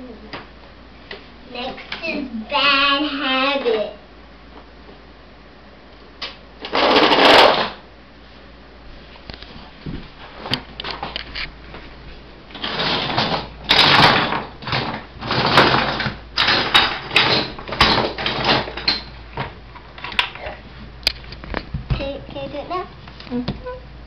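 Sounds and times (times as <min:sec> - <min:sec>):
toy trucks clattering: 0:06.6 - 0:07.8, 0:12.6 - 0:19.1.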